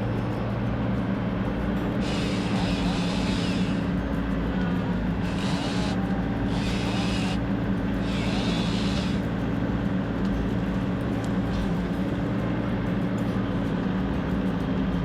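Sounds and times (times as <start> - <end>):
tractor engine droning: 1.4 - 9.8.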